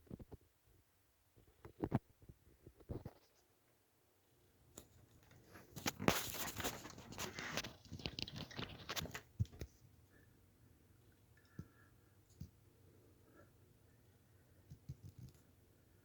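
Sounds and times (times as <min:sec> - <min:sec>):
crackling and rustling: 0:04.7 - 0:09.9.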